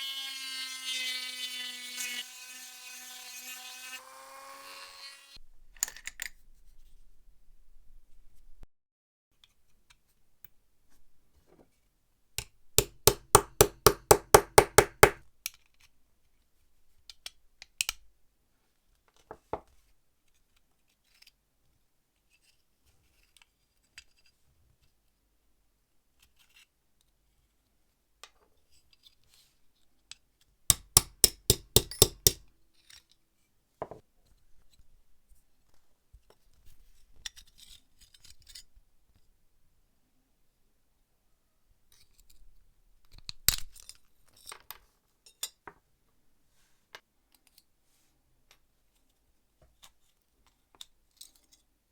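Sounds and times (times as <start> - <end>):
small metal parts knocking: 30.7 - 32.4.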